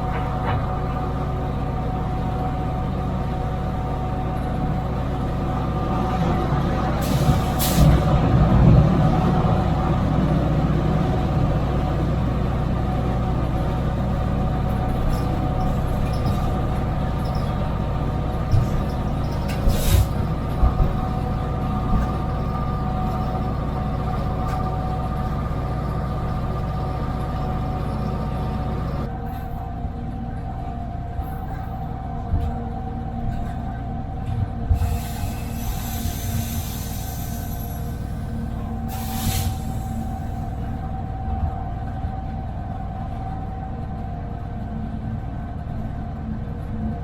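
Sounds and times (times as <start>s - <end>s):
locomotive diesel engine whining: 0.0s - 47.0s
sharp hisses or knocks: 19.7s - 20.1s, 38.9s - 39.9s.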